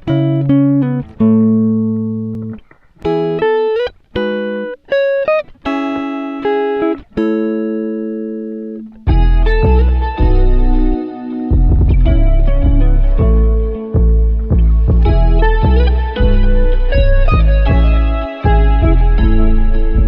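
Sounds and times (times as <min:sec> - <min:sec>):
acoustic guitar music: 0:00.0 - 0:20.0
deep bass: 0:09.1 - 0:20.0.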